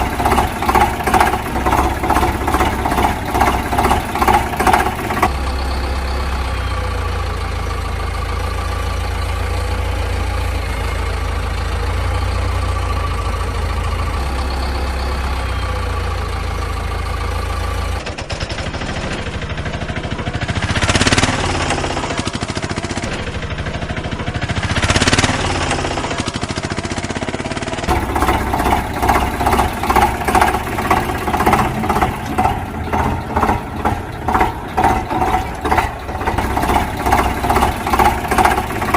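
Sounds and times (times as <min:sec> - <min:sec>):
fast rhythmic engine chugging: 0:00.0 - 0:38.9
low engine running: 0:00.0 - 0:38.9.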